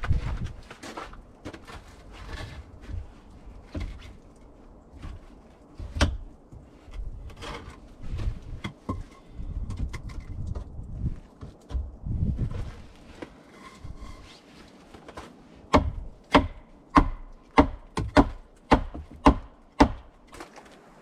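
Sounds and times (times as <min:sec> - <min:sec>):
rustling: 0:00.0 - 0:15.7, 0:20.2 - 0:21.0.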